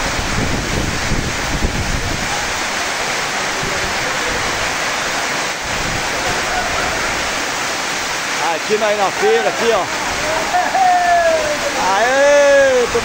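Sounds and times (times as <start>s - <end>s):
wind buffeting microphone: 0.0s - 2.7s, 5.6s - 7.4s
heavy rain pouring: 0.0s - 13.0s.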